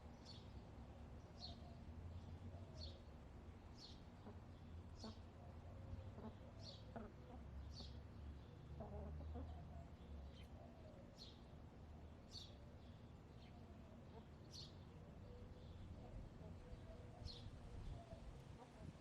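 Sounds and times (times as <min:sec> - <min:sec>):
songbird chirping: 0:00.0 - 0:19.0
hens clucking softly: 0:04.1 - 0:08.1, 0:08.7 - 0:10.0, 0:16.0 - 0:19.0.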